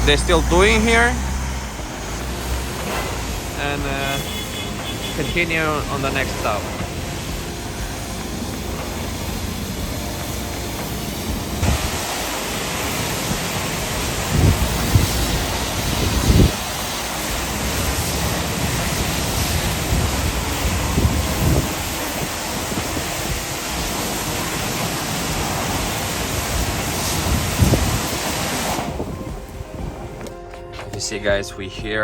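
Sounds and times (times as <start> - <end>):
wind gusts buffeting: 5.4 - 30.3
wind on microphone: 13.3 - 16.8, 18.9 - 23.5, 26.4 - 30.4.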